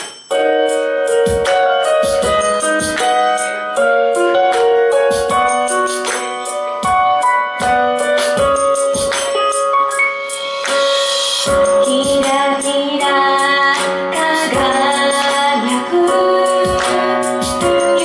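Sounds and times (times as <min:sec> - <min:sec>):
bright high percussion: 0:00.0 - 0:03.5, 0:08.1 - 0:12.8
upbeat pop song: 0:00.0 - 0:18.0
steady drum beat: 0:05.1 - 0:06.2, 0:06.8 - 0:12.5
woman singing: 0:11.6 - 0:18.0.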